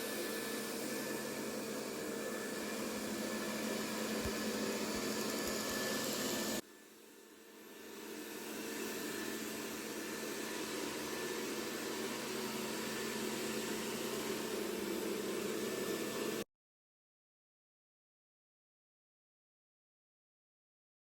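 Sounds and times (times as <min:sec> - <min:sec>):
robot vacuum cleaner humming: 0:00.0 - 0:16.4.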